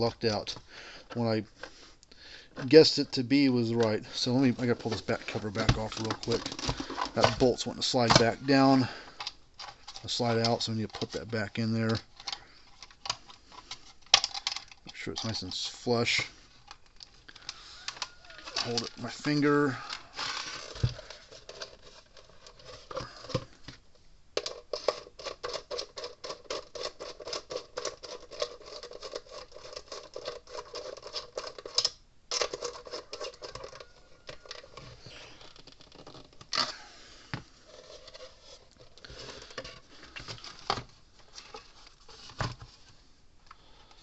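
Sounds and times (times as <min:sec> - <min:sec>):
metal parts clicking and scraping: 0:03.6 - 0:23.4, 0:24.4 - 0:36.8.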